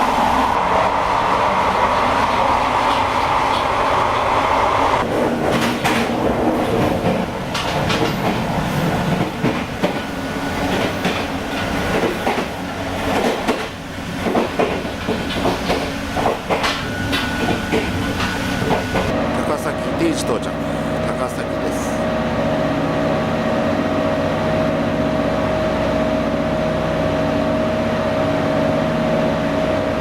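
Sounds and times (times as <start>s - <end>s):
train running rumble: 0.0s - 30.0s
wheels clacking over rail joints: 5.0s - 19.2s.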